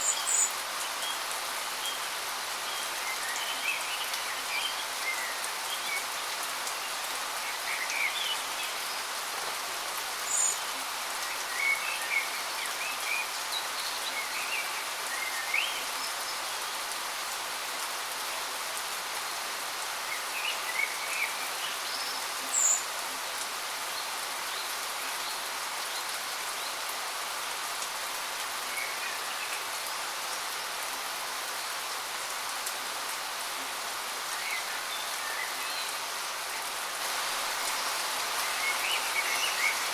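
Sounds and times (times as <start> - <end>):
waterfall rushing: 34.0 - 39.9.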